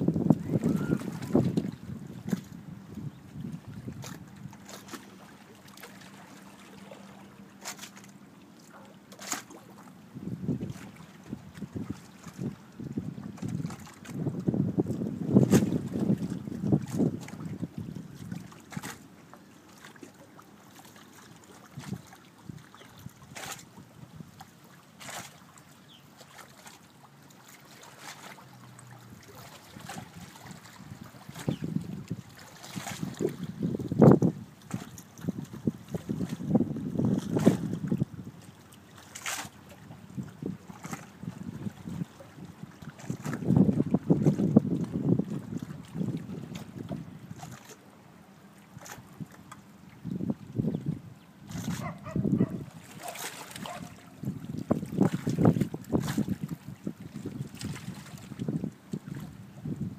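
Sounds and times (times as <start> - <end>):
wind rumble on microphone: 0.0 - 5.0, 10.1 - 19.0, 21.7 - 24.4, 28.9 - 38.5, 39.3 - 47.8, 48.8 - 59.9
waves lapping at shore: 0.0 - 50.5, 51.4 - 59.9.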